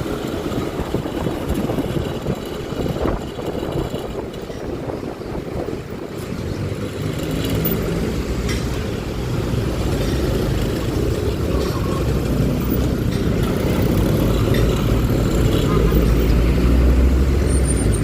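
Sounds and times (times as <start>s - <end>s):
scooter engine running: 0.0s - 5.9s
road and wind noise: 0.0s - 18.0s.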